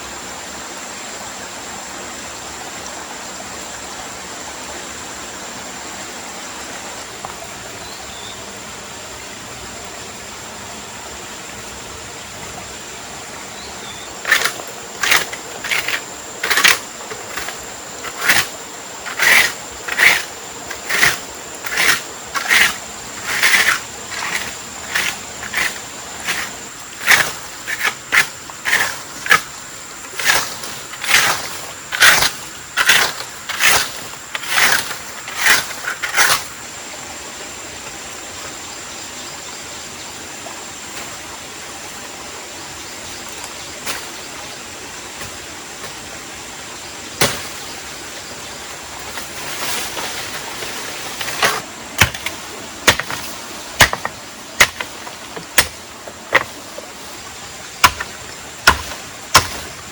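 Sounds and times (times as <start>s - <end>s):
faint steady hiss: 0.0s - 59.9s
blade chopping wood: 14.2s - 36.5s, 47.2s - 47.7s, 49.9s - 56.8s, 57.8s - 59.9s.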